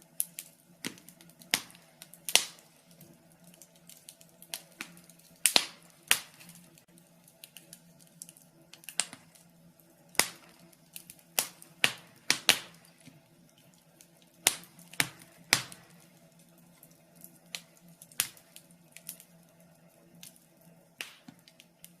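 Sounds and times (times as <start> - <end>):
sharp pops of fire: 0.0 - 19.4, 20.2 - 22.0
faint steady hum: 0.0 - 22.0
wood fire crackling: 0.0 - 22.0.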